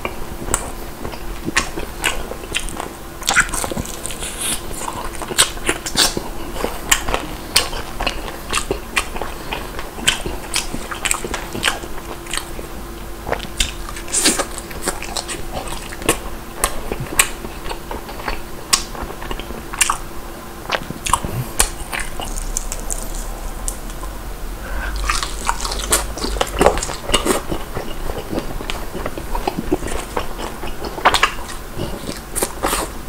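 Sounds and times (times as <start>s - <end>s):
person chewing crispy fried chicken: 0.4s - 33.0s.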